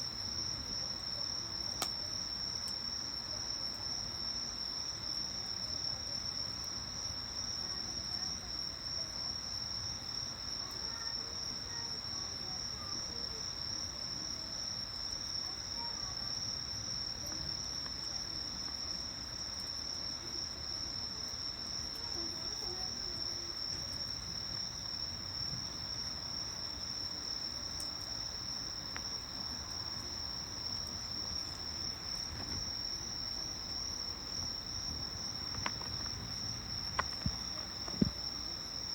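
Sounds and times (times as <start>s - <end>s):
insects trilling: 7.1s - 38.9s
wood fire popping: 22.0s - 38.6s.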